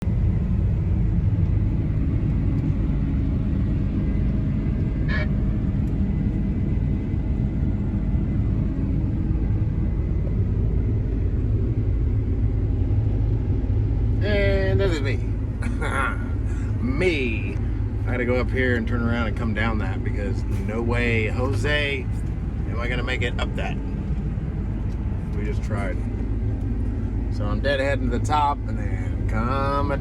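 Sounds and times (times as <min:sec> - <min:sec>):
tractor diesel engine rumbling: 0:00.0 - 0:30.0.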